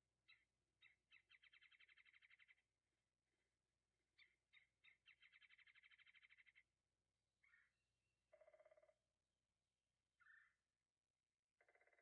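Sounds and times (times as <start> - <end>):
faint bird trill: 0.2 - 2.7, 4.2 - 6.7, 7.4 - 9.0, 10.2 - 10.6, 11.5 - 12.0.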